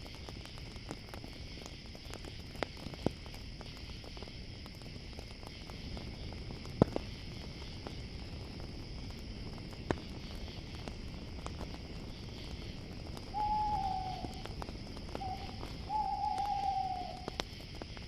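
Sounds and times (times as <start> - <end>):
campfire crackling and popping: 0.0 - 18.0
crickets chirring: 0.0 - 18.0
owl hooting: 13.3 - 14.5, 15.2 - 17.4.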